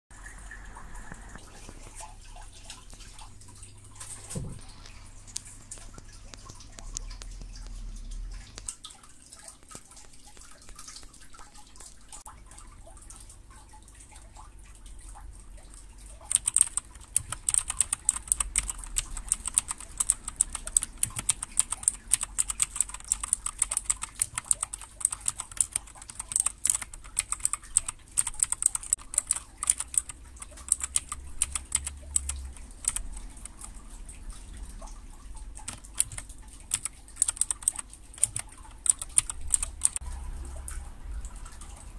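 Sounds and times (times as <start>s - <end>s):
mechanical keyboard typing: 16.2s - 33.7s, 35.6s - 40.0s.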